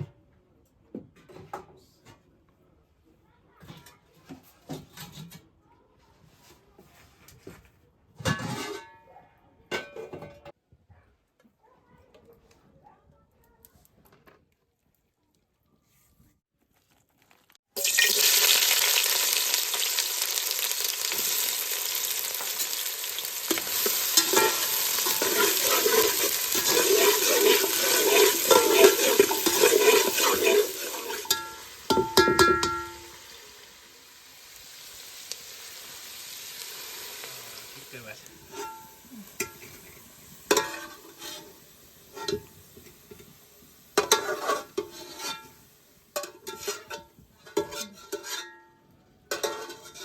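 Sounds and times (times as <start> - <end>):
metal spoon scraping a pan: 8.3 - 9.0, 21.0 - 33.2, 38.3 - 43.3, 44.0 - 50.0
food sizzling in hot oil: 17.7 - 48.4.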